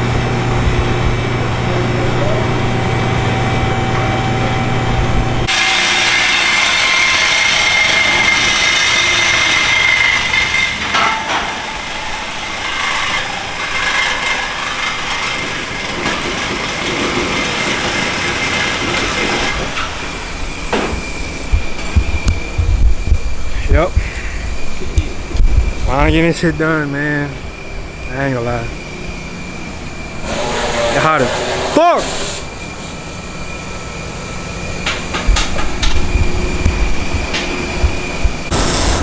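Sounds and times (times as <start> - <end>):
power saw whining: 5.4 - 21.3, 30.2 - 33.9, 38.5 - 39.0.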